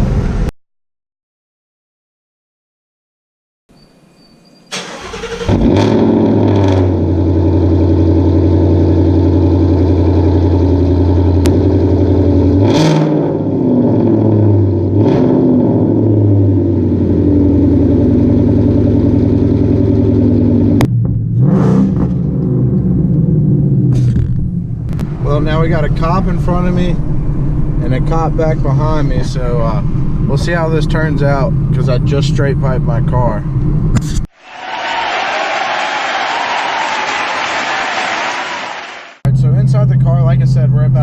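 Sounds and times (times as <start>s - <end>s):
loud car exhaust drone: 5.4s - 34.0s.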